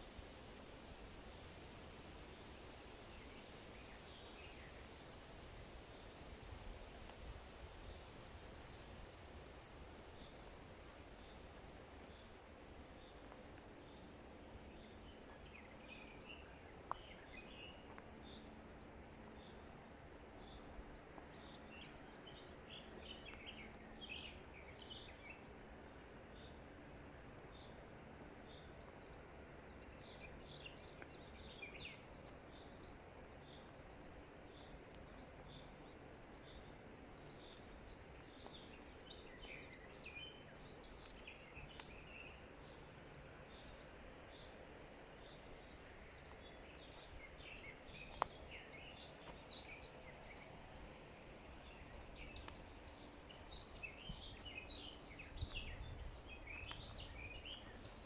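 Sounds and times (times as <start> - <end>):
low background hiss: 0.0 - 58.0
songbirds chirping: 0.0 - 58.0.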